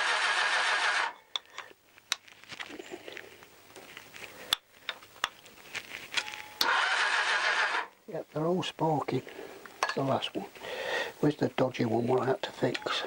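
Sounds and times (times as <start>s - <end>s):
starter motor cranking engine: 0.0s - 1.2s, 6.6s - 7.9s.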